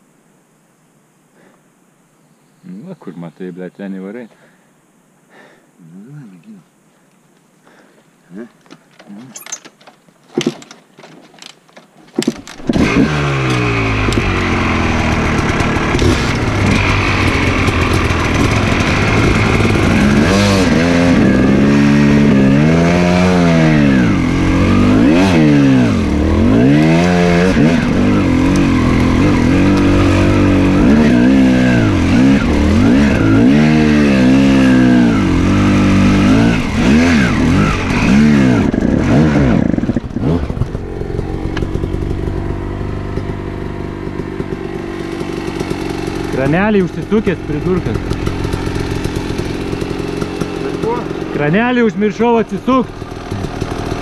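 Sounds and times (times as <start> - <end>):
motorcycle engine revving: 12.2 - 54.0.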